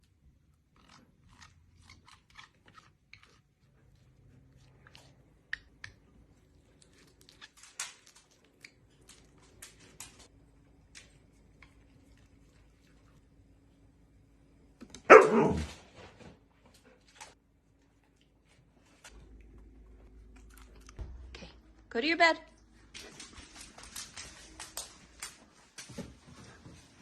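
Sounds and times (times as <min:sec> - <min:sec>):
crisp clicks and crunches: 0:06.7 - 0:10.3.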